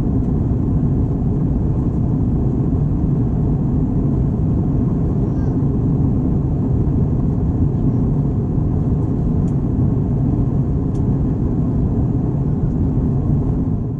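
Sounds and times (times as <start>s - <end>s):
airplane cabin engine rumble: 0.0s - 13.9s.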